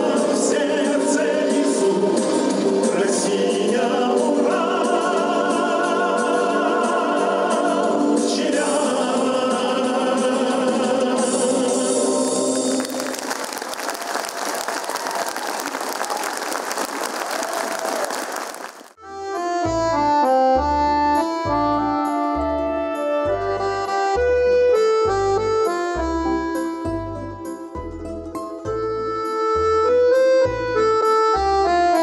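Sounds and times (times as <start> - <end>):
group of voices singing: 0.0 - 12.8
musical accompaniment: 0.0 - 16.2, 19.0 - 32.0
audience applauding: 12.7 - 19.0.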